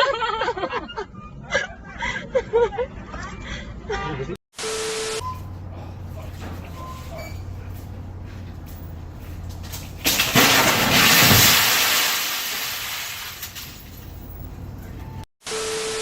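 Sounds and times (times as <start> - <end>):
low vehicle hum: 5.2 - 15.3
vehicle crash impact: 5.3 - 15.3
crunching glassy noise: 9.6 - 14.4.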